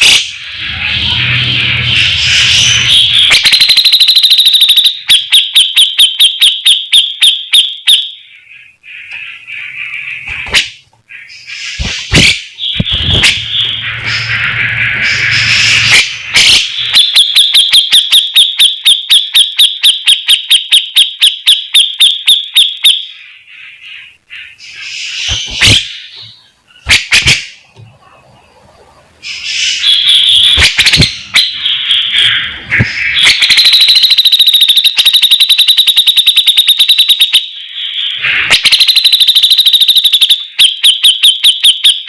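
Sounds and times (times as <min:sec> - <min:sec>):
bird calls: 0:00.0 - 0:05.4, 0:08.1 - 0:17.7, 0:22.5 - 0:35.6, 0:36.8 - 0:40.6.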